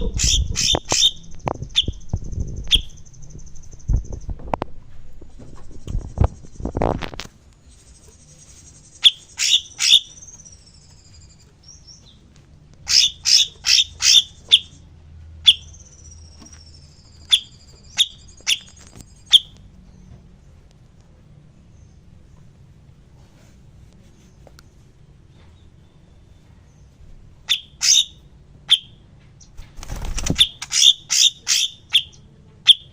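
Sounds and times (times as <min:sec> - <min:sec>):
songbird chip notes and whistles: 0:00.0 - 0:04.3, 0:07.6 - 0:20.2, 0:25.3 - 0:29.6, 0:30.4 - 0:32.9.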